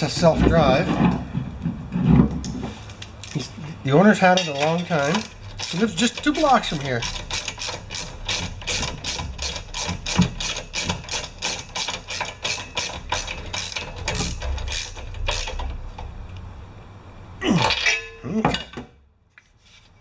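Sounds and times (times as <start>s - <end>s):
ratchet wrench clicking: 4.6s - 15.7s.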